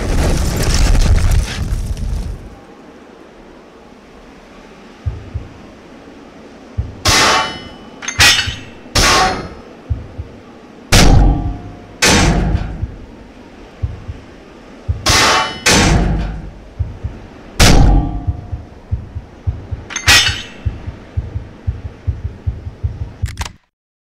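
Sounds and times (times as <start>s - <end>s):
heavy metallic clangs: 6.8s - 10.3s, 10.9s - 13.1s, 14.9s - 23.1s
dull thuds: 8.4s - 13.1s, 13.7s - 23.2s.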